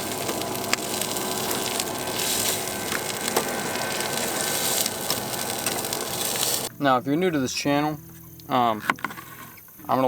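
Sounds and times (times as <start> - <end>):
sausage sizzling in a pan: 0.0 - 6.7
sharp popping fat: 0.0 - 6.7.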